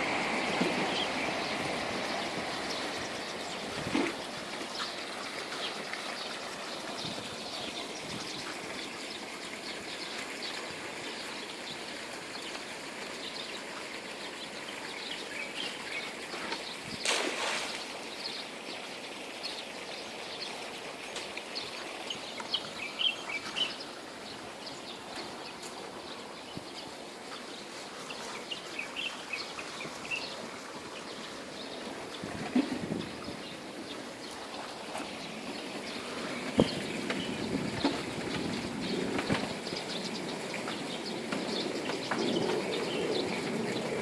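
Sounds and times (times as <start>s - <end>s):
small birds chirping: 0.8s - 44.0s.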